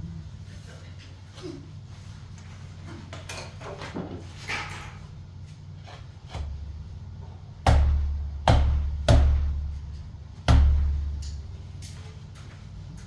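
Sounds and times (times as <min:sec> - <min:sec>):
heavy booming knocks: 0:07.6 - 0:11.2.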